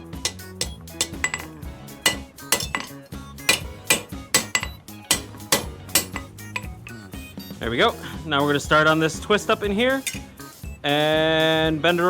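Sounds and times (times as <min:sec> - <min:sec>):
hammer striking steel on anvil: 0:00.0 - 0:07.0, 0:10.0 - 0:10.3.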